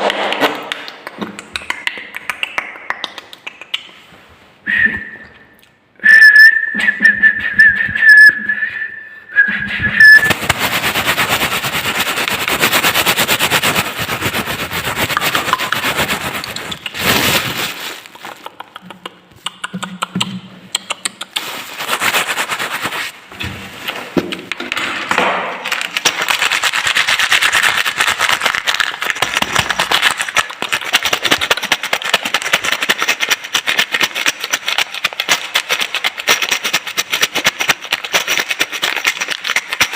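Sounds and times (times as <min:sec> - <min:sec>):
glass high whistle tone: 0:04.7 - 0:10.3.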